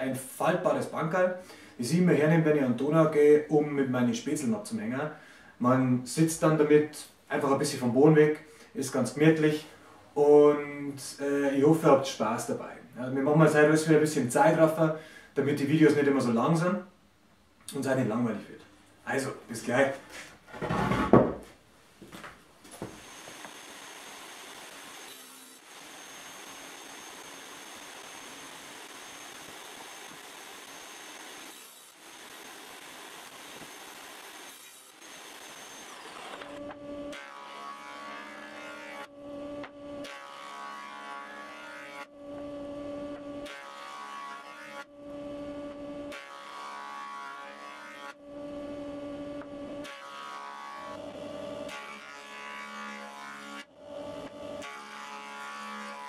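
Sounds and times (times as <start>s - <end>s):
woodworking machine hissing: 22.8s - 40.4s.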